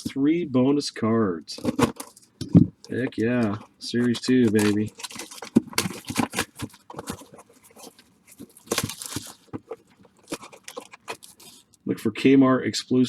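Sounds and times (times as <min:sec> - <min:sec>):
packaging tearing: 0:01.6 - 0:11.8
wrapper crinkling: 0:01.6 - 0:11.8.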